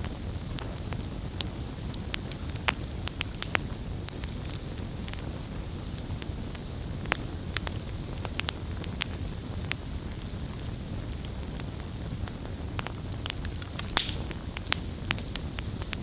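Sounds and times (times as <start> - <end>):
campfire pops and snaps: 0.0 - 16.0
low rumble of flames: 0.0 - 16.0.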